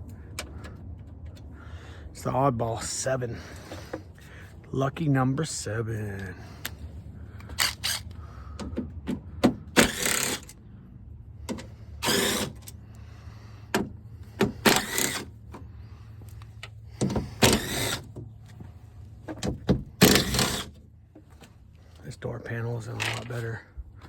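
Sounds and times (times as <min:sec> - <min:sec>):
socket wrench ratcheting: 0:07.4 - 0:08.1, 0:09.8 - 0:10.6, 0:12.0 - 0:12.8.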